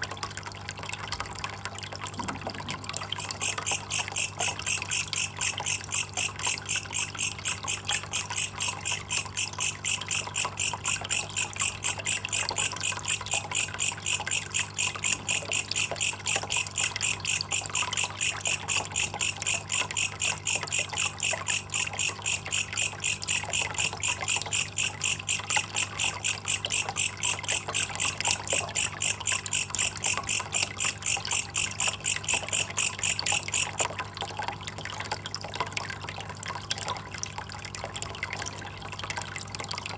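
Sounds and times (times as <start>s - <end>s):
faint trickle of water: 0.0s - 39.9s
katydid stridulating: 3.2s - 33.8s.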